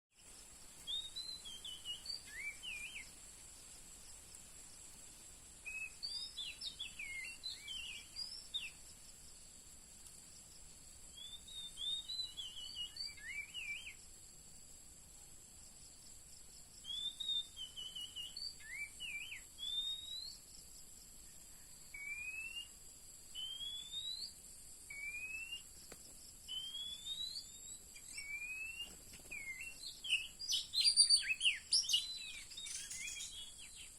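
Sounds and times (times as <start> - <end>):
steady high hiss: 0.1 - 33.9
magpie-robin whistling calls: 0.9 - 3.1, 5.7 - 8.8, 11.2 - 14.0, 16.8 - 20.4, 21.9 - 22.8, 23.4 - 25.7, 26.5 - 33.9.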